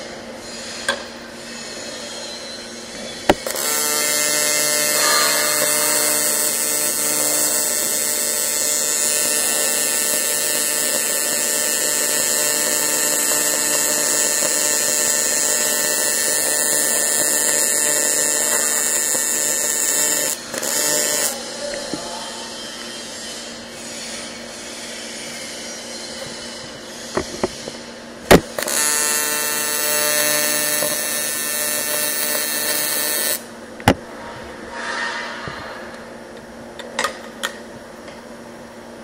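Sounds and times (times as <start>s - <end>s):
welding arc buzzing: 2.7s - 24.4s, 25.3s - 33.6s.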